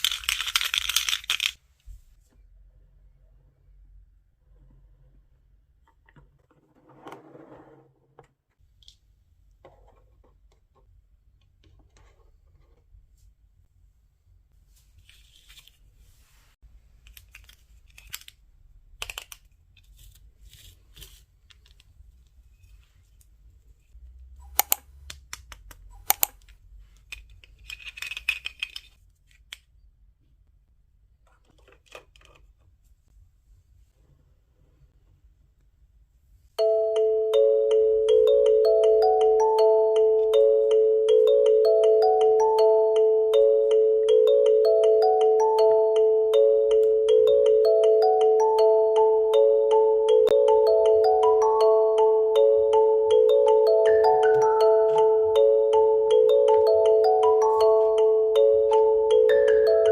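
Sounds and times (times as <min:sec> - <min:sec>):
plastic toy pieces clicking: 0:00.0 - 0:01.6, 0:17.0 - 0:19.5, 0:24.5 - 0:29.7.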